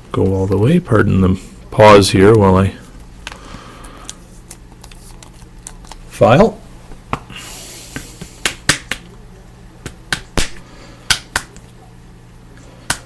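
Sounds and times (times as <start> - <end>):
cards clicking and tapping: 7.9 - 9.2, 9.8 - 11.7.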